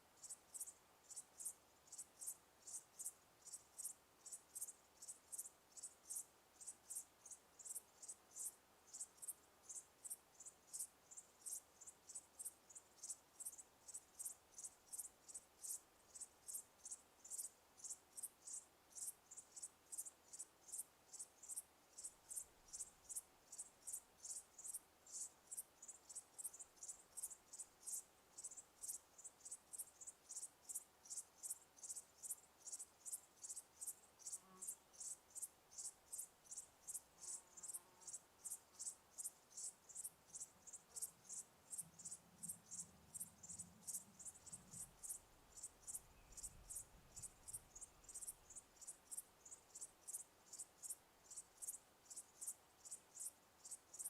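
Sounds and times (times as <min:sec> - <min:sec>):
crickets chirping: 0:00.2 - 0:54.0.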